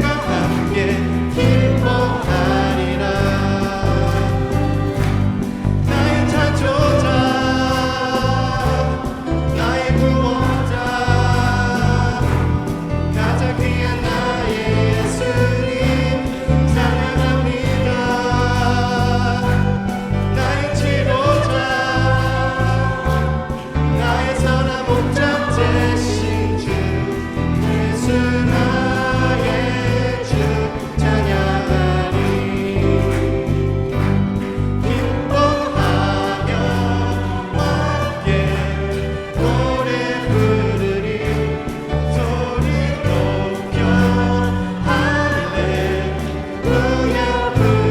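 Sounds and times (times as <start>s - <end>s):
group singing worship song: 0.0s - 47.9s
instrumental accompaniment with beat: 0.0s - 47.9s.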